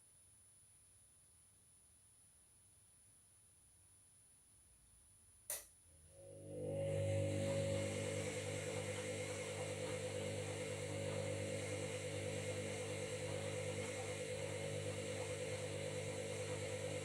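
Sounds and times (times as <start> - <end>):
washing machine motor humming: 6.1 - 17.0.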